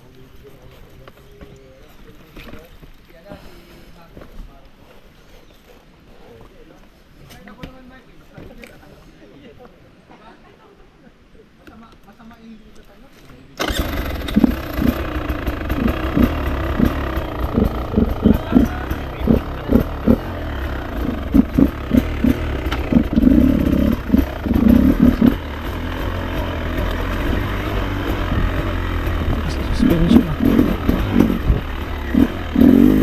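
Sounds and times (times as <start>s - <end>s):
motorcycle engine revving: 13.6s - 33.0s.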